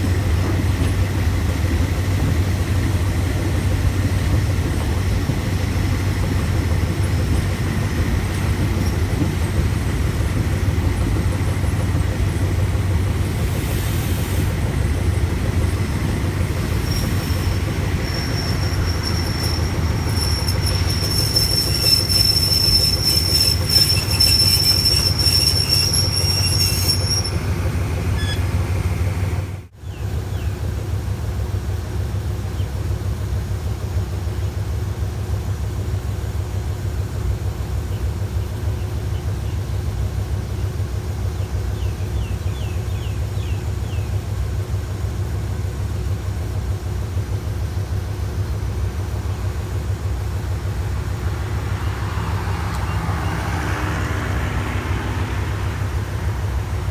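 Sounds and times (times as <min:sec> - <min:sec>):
high wheel squeal: 0:00.0 - 0:29.7, 0:47.7 - 0:56.9
train rumbling on rails: 0:00.0 - 0:56.9.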